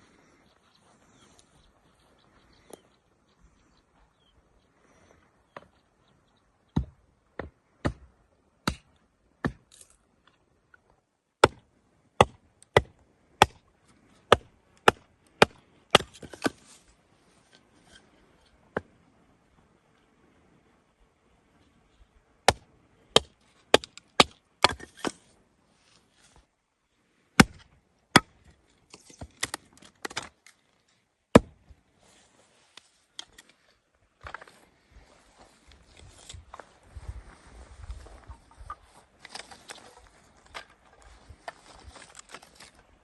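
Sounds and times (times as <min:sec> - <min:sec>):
chopping strikes on wood: 0:06.7 - 0:09.7, 0:11.4 - 0:11.6, 0:12.2 - 0:13.6, 0:14.3 - 0:16.6, 0:27.4 - 0:28.3, 0:31.3 - 0:31.6.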